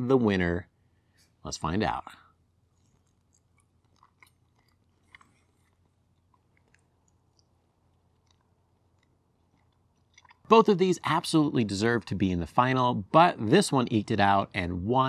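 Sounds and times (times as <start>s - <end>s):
person chewing chicken: 2.6s - 10.8s.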